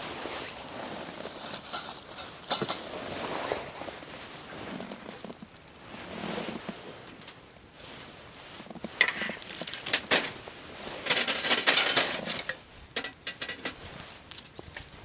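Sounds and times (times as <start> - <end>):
metal cookware clinking: 1.5 - 2.8, 11.1 - 12.4.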